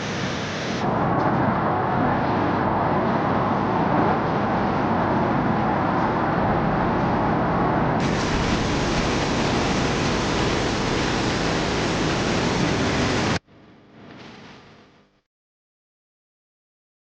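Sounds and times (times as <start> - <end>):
loud rushing noise: 0.0 - 13.4.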